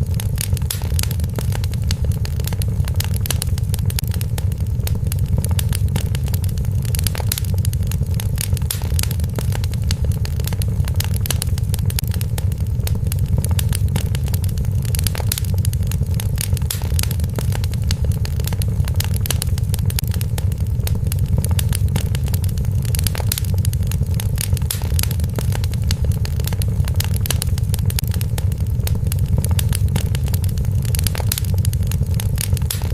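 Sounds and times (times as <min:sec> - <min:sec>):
low fire rumble: 0:00.0 - 0:32.9
wood fire crackling: 0:00.0 - 0:32.9.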